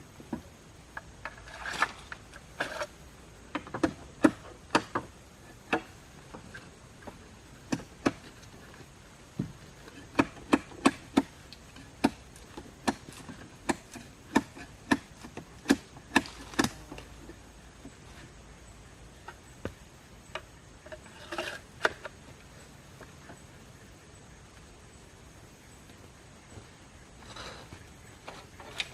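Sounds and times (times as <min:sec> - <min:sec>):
wood being chopped: 0:10.1 - 0:11.3, 0:12.8 - 0:16.8.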